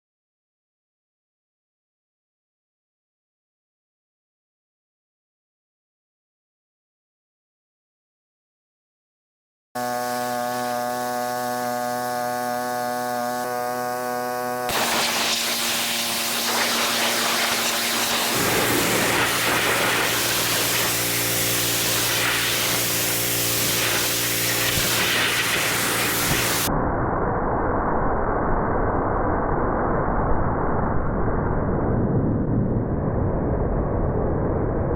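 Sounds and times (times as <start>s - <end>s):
pressure washer motor hum: 9.8s - 26.7s
water jet spraying hiss: 14.7s - 26.7s.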